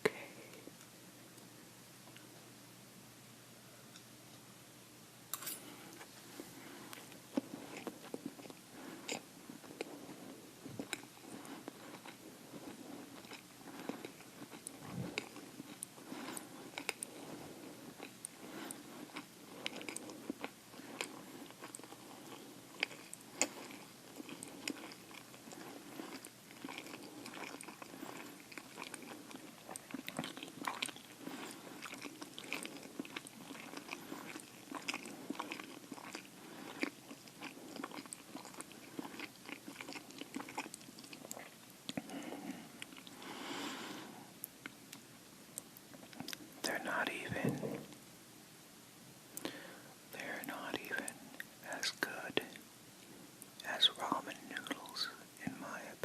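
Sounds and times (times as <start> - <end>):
chewing and biting food: 10.8 - 43.2.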